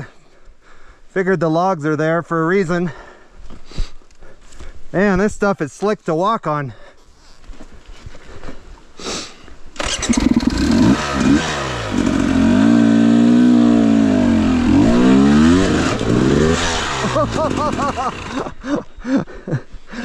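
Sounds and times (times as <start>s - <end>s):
dirt bike engine revving: 9.8s - 18.6s.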